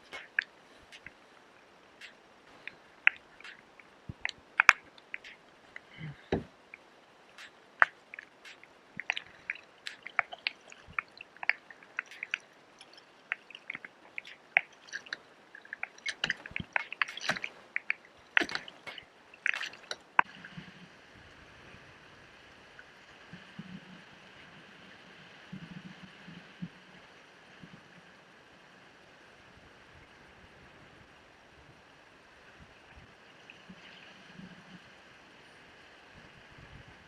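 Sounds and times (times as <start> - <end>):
wet squishes and drips: 0.0 - 1.3, 2.0 - 20.3
faint steady hiss: 0.0 - 37.0
sharp clicks: 2.0 - 5.9.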